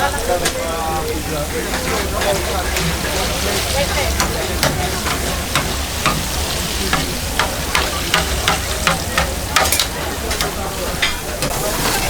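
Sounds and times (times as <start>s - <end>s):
food sizzling in hot oil: 0.0s - 12.0s
sharp clicks and knocks: 4.2s - 11.5s.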